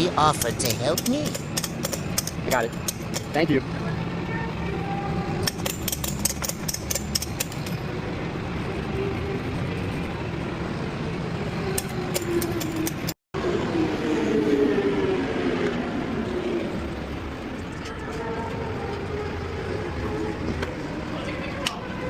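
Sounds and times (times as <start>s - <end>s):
truck engine running: 0.0s - 13.2s
sharp metallic clicks: 0.2s - 3.5s, 5.4s - 7.8s, 11.7s - 13.2s.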